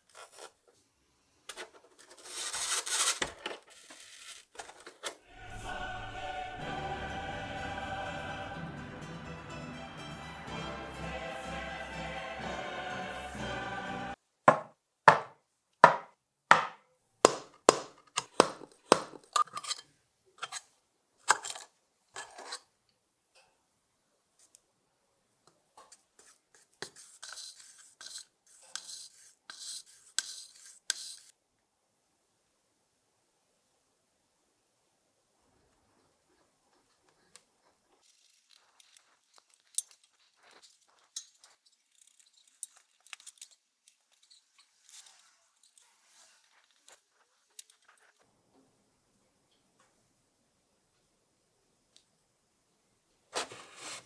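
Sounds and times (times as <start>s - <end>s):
crisp scratching: 1.9s - 4.9s, 38.0s - 48.2s
sharp knocks on hard surface: 14.5s - 19.1s.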